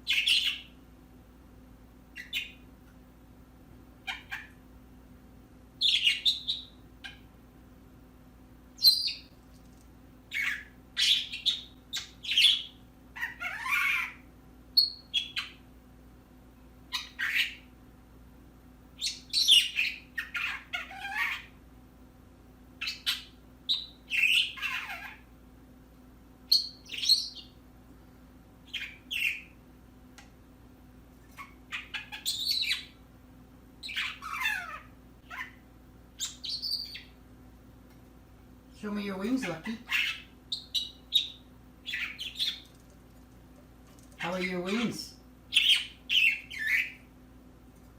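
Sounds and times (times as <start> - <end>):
birds chirping and squawking: 0.0 - 0.8, 2.1 - 2.7, 4.0 - 4.6, 5.8 - 7.3, 8.8 - 9.3, 10.3 - 15.6, 16.9 - 17.7, 19.0 - 21.6, 22.8 - 25.4, 26.5 - 27.6, 28.7 - 29.6, 31.2 - 33.0, 33.8 - 37.2, 38.8 - 42.9, 43.9 - 47.2.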